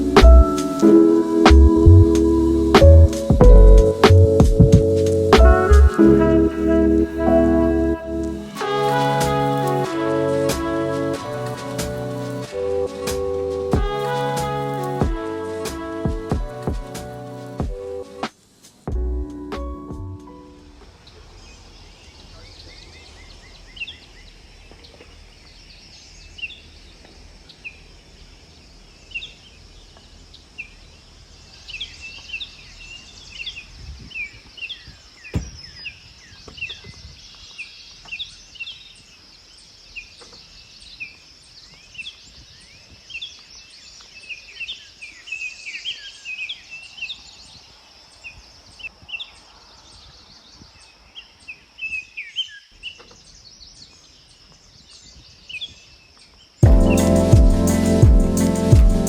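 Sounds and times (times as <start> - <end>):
high-pitched hiss: 0.0 - 6.1, 8.2 - 18.9, 56.6 - 59.0
birds chirping: 20.4 - 59.0.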